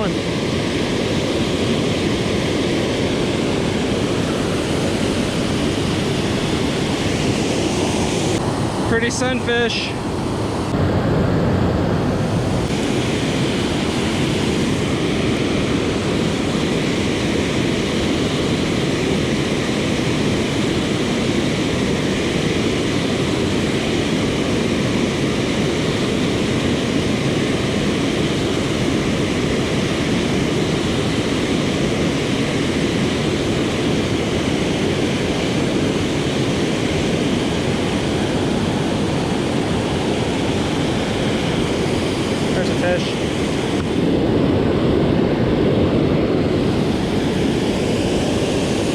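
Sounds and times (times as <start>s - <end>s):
river water flowing: 0.0s - 10.8s.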